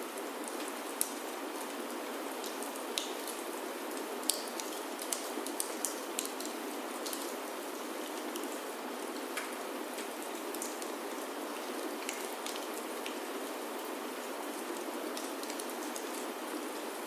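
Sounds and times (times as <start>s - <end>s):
rain on wooden roof: 0.0s - 17.0s
wood fire crackling: 2.4s - 13.2s.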